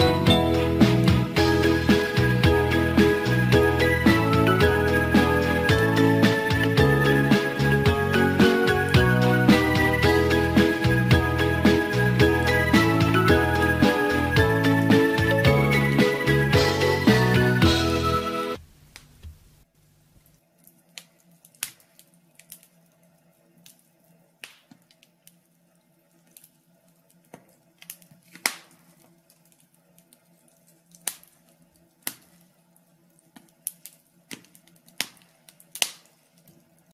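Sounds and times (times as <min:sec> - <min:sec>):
wood fire crackling: 0:00.0 - 0:36.9.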